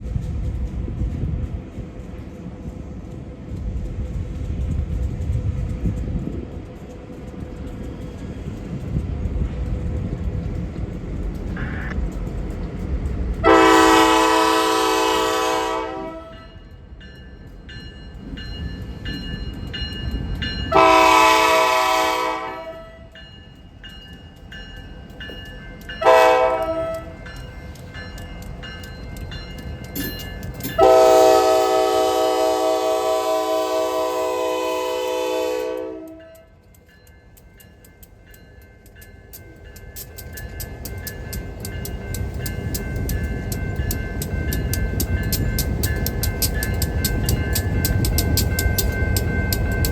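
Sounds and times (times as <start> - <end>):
train rumble: 0.0 - 49.9
locomotive horn blasts: 13.4 - 16.6, 20.7 - 23.1, 26.0 - 27.2, 30.8 - 36.4.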